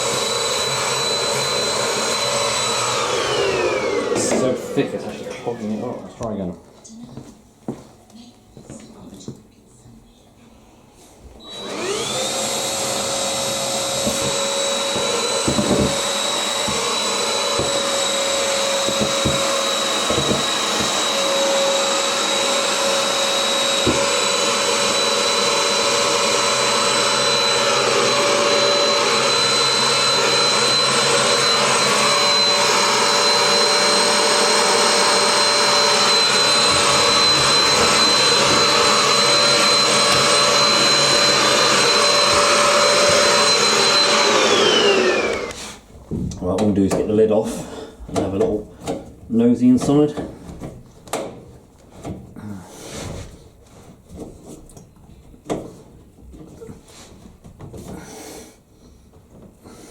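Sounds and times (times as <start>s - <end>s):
vacuum cleaner motor whining: 0.0s - 6.4s, 11.4s - 45.9s.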